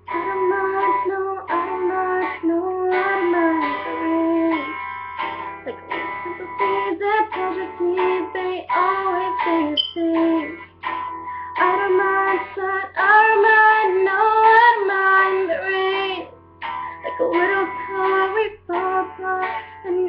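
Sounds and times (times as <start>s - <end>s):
person singing: 0.0s - 4.8s, 5.6s - 10.6s, 17.0s - 20.0s
plucked guitar: 0.0s - 20.0s.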